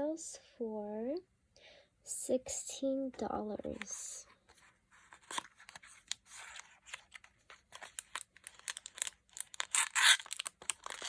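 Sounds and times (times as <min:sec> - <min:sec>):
paper and plastic rustling: 0:03.6 - 0:11.0
packaging clicks: 0:05.2 - 0:11.0.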